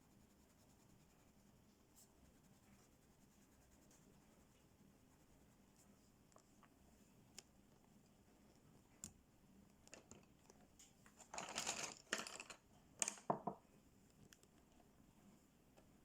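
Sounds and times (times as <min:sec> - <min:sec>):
scratchy rubbing on paper: 0:00.0 - 0:06.1
light clicks and taps: 0:06.2 - 0:15.0.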